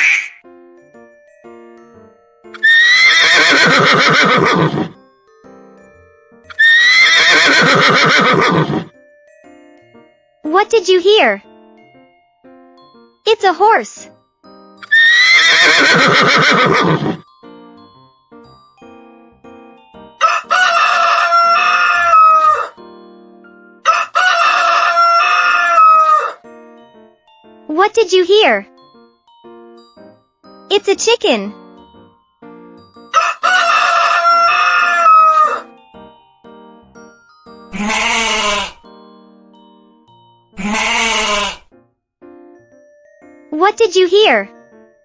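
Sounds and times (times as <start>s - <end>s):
quiet background music: 0.4s - 45.0s
horse neighing: 2.6s - 5.0s, 6.5s - 8.9s, 14.8s - 17.2s, 37.7s - 38.8s, 40.6s - 41.7s
rooster crowing: 20.2s - 22.8s, 23.8s - 26.4s, 33.2s - 35.7s, 37.8s - 38.8s.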